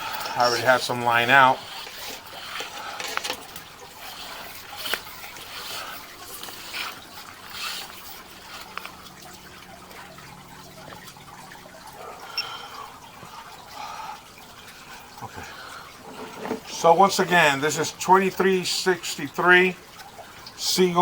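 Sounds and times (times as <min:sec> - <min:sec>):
water trickling and dripping: 0:00.0 - 0:21.0
small clicks and knocks: 0:01.8 - 0:05.6.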